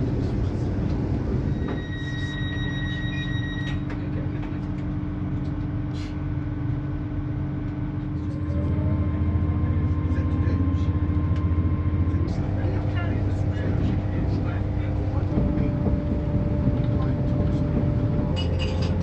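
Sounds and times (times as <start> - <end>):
train rumbling on track: 0.0 - 19.0
high-pitched wheel squeal: 1.4 - 3.9.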